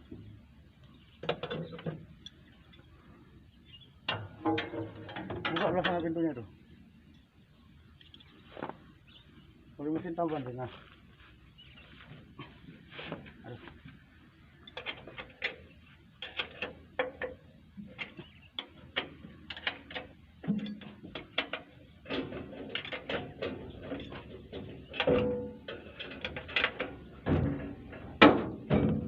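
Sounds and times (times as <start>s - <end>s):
metallic clicks and clanks: 4.1s - 6.2s, 14.6s - 29.0s.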